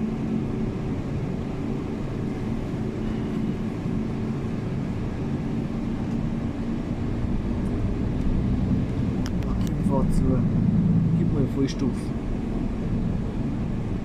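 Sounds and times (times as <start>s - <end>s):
bus engine humming: 0.0s - 14.0s.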